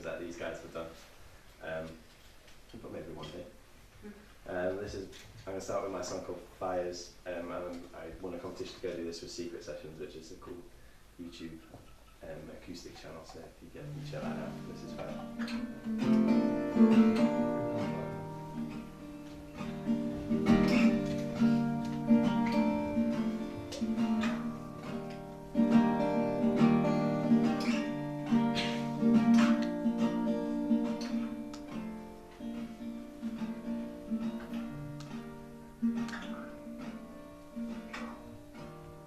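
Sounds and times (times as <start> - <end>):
acoustic guitar chords: 13.8 - 39.0.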